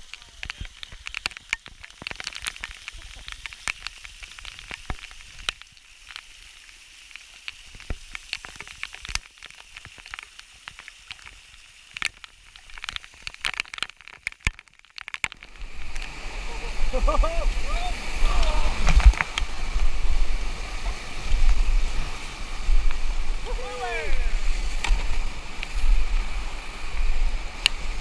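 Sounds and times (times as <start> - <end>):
river water splashing: 0.0 - 28.0.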